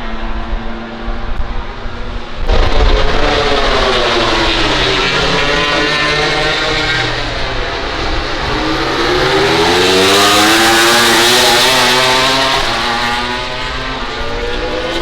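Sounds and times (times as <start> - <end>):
racing motorcycle accelerating past: 2.4 - 15.0.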